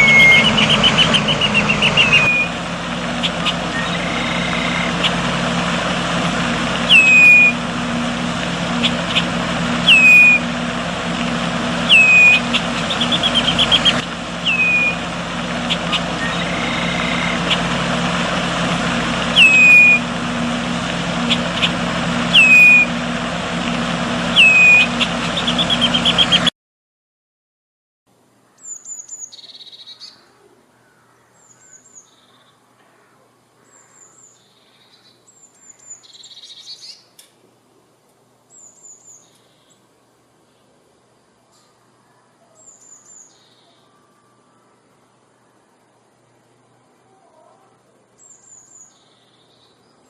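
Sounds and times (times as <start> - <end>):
small bird whistled call: 0.0 - 2.6, 3.2 - 5.1, 6.8 - 7.6, 8.8 - 10.5, 11.9 - 15.0, 15.7 - 17.4, 19.3 - 20.1, 22.3 - 23.0, 24.3 - 26.5.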